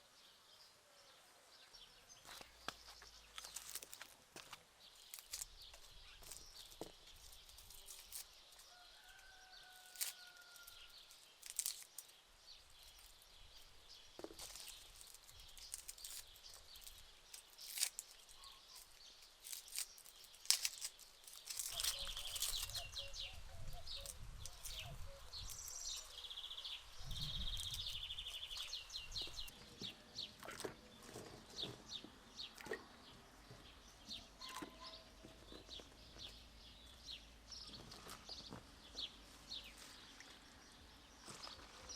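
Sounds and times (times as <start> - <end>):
small birds chirping: 0.0 - 41.9
close clicks and rustles: 2.4 - 26.5
high bird trills: 20.7 - 29.5.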